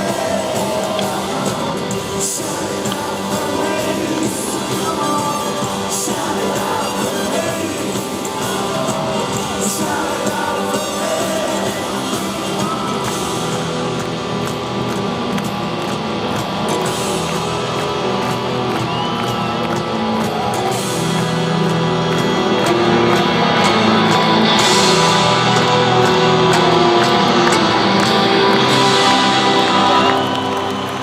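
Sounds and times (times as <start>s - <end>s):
bass guitar: 0.0s - 31.0s
drums: 0.0s - 31.0s
electric guitars: 0.0s - 31.0s.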